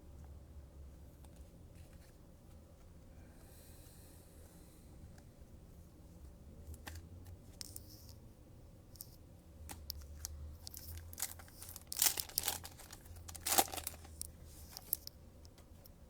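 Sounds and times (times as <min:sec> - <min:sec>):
wrapper crinkling: 0:10.7 - 0:15.1
wrapper ripping: 0:10.8 - 0:15.0.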